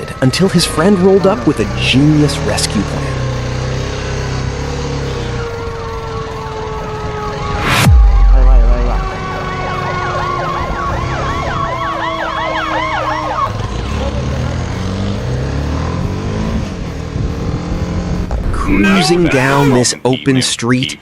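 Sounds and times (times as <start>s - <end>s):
emergency vehicle sirens: 0.0s - 15.8s, 18.6s - 21.0s
loud sweep and low rumble: 7.6s - 9.2s.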